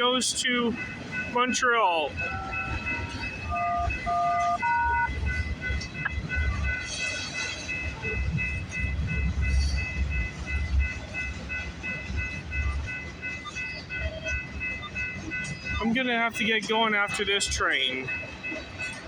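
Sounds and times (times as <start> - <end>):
freight train rumbling past: 0.0 - 19.0
fast high ringing: 0.8 - 5.5.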